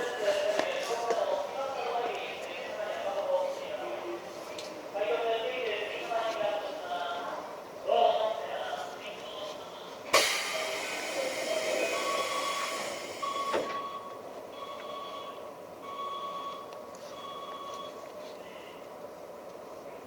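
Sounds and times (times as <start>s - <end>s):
hiss: 10.1s - 13.6s.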